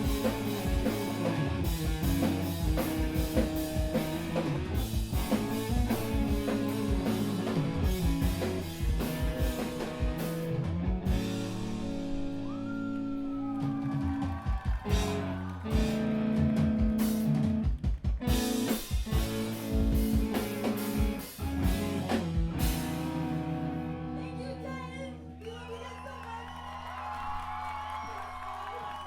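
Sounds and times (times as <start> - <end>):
guitar chords ringing out: 0.0 - 12.6, 18.2 - 25.3
live screamo band playing: 0.0 - 26.2.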